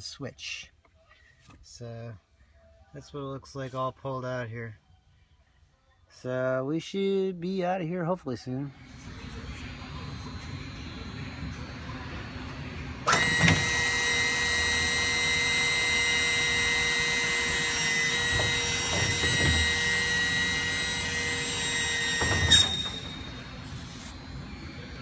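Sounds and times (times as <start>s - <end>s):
hydraulic pump whining: 8.9s - 25.0s.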